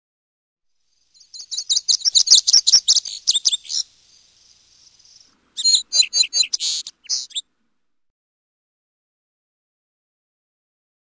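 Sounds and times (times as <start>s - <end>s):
small bird chirping and trilling: 0.9s - 7.5s.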